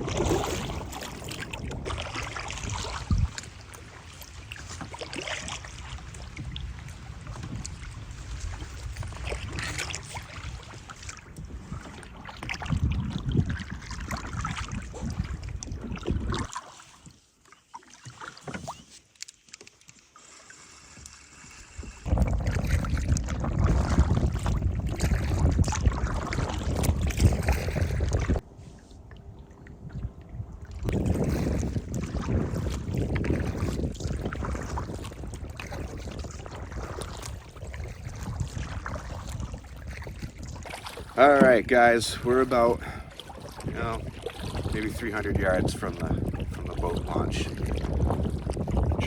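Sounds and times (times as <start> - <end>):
wind rumble on microphone: 0.0 - 16.5, 21.6 - 49.0
paddle strokes splashing in water: 0.0 - 49.0.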